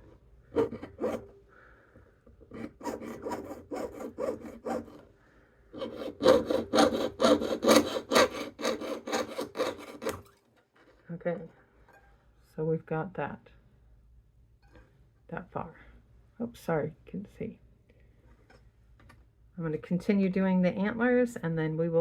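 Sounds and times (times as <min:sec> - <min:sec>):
saw cutting metal sheet: 0:00.5 - 0:01.3, 0:02.5 - 0:05.0, 0:05.8 - 0:10.3.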